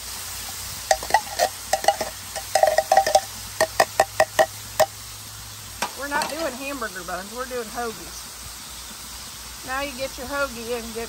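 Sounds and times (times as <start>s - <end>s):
food sizzling on a griddle: 0.0s - 11.0s
sharp grease pops: 0.9s - 5.0s.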